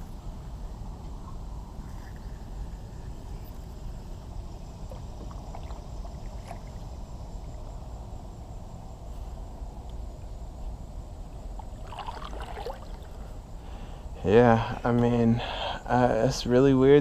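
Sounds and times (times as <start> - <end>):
steady low rumble: 0.0 - 17.0
small splashes: 4.9 - 6.9, 11.8 - 13.2.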